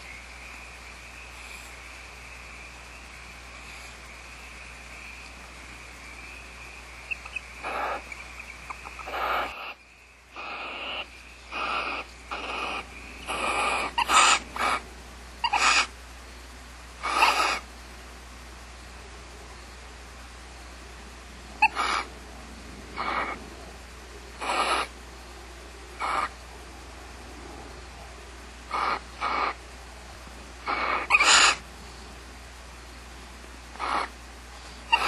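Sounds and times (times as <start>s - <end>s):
owls giving harsh hissing calls: 7.0s - 16.0s, 17.0s - 17.7s, 21.6s - 22.1s, 23.0s - 23.4s, 24.4s - 25.0s, 26.0s - 26.4s, 28.7s - 29.6s, 30.6s - 31.6s, 33.7s - 35.0s.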